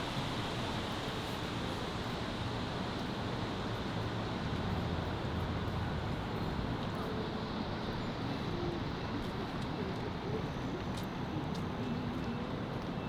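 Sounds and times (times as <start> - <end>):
traffic noise: 2.5 - 9.8
low vehicle rumble: 4.4 - 7.0.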